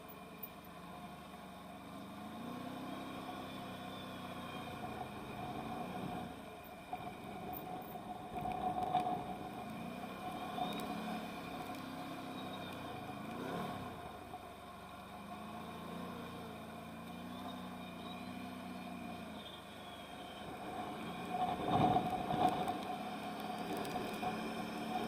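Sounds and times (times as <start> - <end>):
atv engine revving: 1.9 - 25.0.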